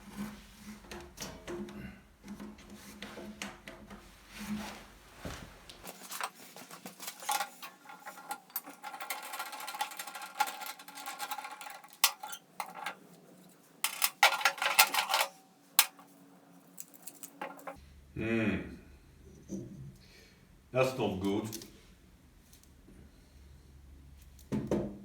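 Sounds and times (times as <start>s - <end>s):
small metallic clicks and rattles: 5.9s - 13.2s, 13.8s - 16.1s, 16.7s - 17.8s.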